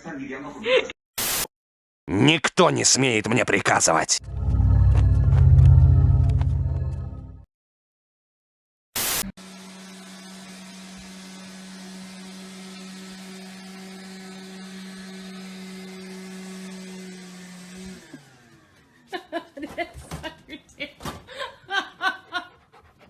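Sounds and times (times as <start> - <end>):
small electric motor humming: 9.4 - 18.8.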